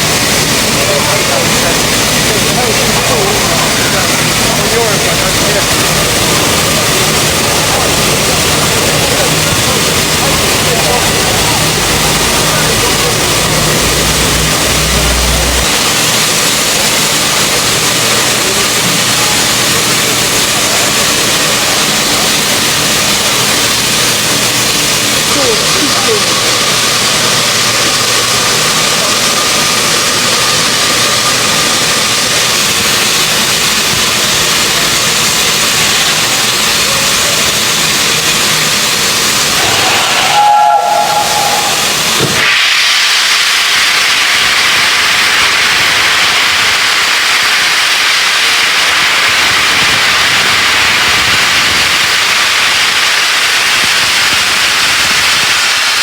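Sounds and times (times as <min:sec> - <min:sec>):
steam locomotive hissing steam: 0:00.0 - 0:56.0
short tone: 0:39.6 - 0:42.2.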